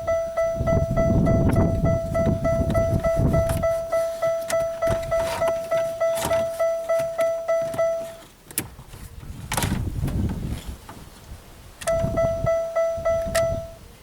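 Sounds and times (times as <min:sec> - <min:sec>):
car warning chime: 0:00.0 - 0:08.3, 0:11.8 - 0:13.9.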